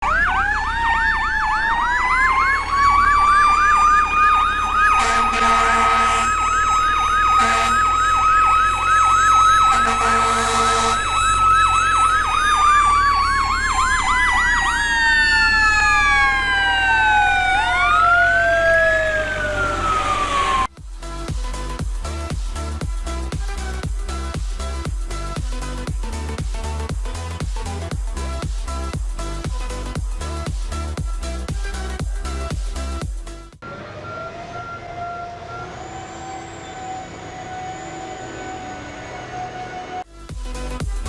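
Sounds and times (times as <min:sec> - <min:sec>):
yelp siren warbling: 0:00.0 - 0:20.7, 0:33.6 - 0:40.1
wailing siren: 0:00.0 - 0:20.8, 0:33.6 - 0:40.2
vehicle horn blasts: 0:05.0 - 0:06.4, 0:07.3 - 0:07.9, 0:09.7 - 0:11.2.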